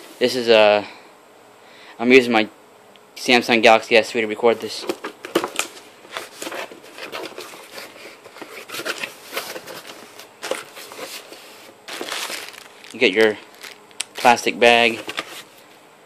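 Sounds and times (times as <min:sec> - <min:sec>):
cardboard and plastic rustling: 0:04.6 - 0:15.7.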